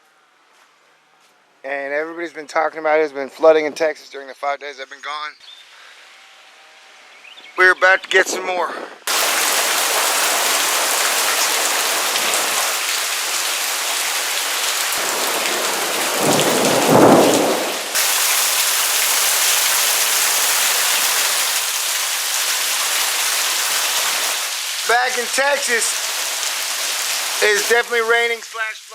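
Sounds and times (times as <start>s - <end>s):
heavy rain pouring: 9.1s - 28.9s
thunder rumbling: 15.0s - 18.0s.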